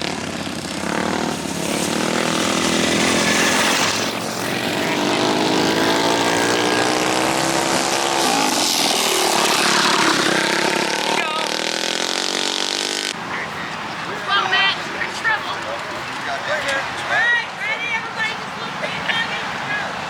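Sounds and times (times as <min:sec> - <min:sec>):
small motorbike engine revving: 0:00.0 - 0:13.2.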